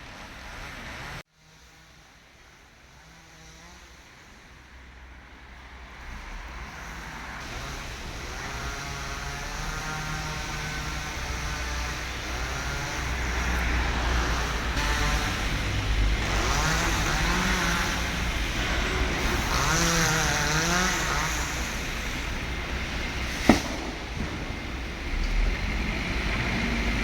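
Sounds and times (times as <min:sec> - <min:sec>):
chainsaw cutting: 0:00.6 - 0:04.8, 0:06.0 - 0:27.0
sharp crack: 0:23.2 - 0:25.7.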